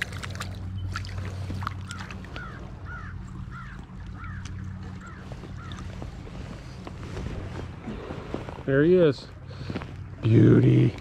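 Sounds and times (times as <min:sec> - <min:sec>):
steady low hum: 0:00.0 - 0:11.0
bird calling: 0:00.6 - 0:06.8.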